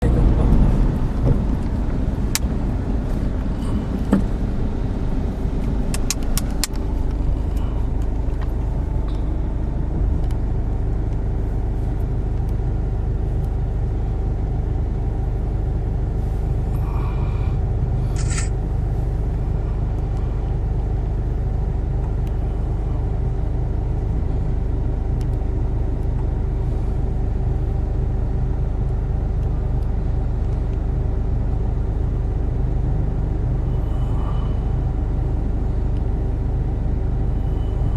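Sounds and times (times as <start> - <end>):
steady hum: 0.0 - 37.9
vehicle engine rumbling: 0.0 - 37.9
sharp clicks: 5.9 - 6.8.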